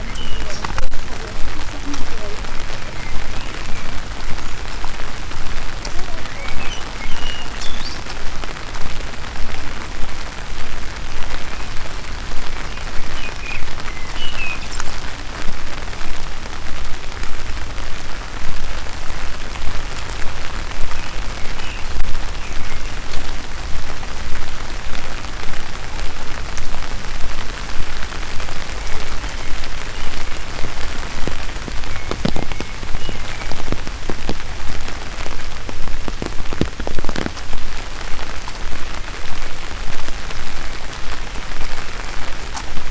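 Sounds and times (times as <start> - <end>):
steady rain falling: 0.0 - 42.9
footsteps: 26.5 - 38.8.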